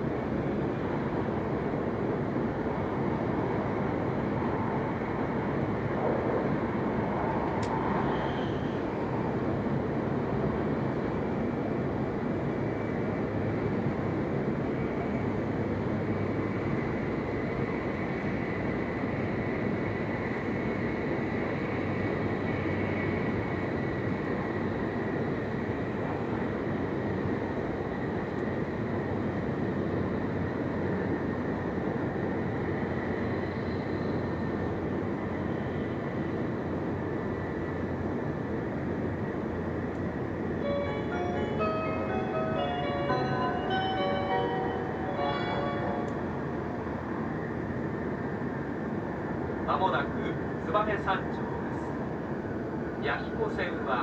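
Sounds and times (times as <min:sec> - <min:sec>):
train running gear rumble: 0:00.0 - 0:54.0
faint high whine: 0:40.5 - 0:47.5.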